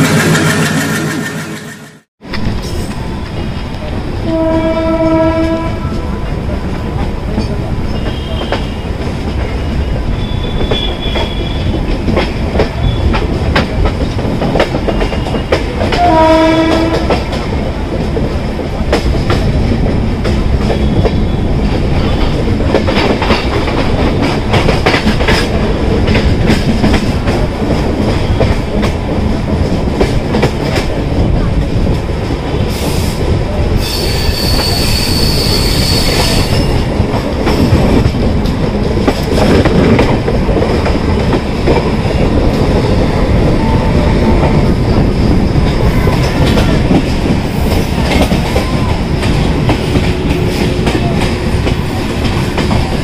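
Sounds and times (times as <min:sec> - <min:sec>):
train rumbling: 0:00.0 - 0:53.0
train horn blast: 0:04.2 - 0:06.2, 0:15.9 - 0:17.3
high wheel squeal: 0:33.8 - 0:36.9.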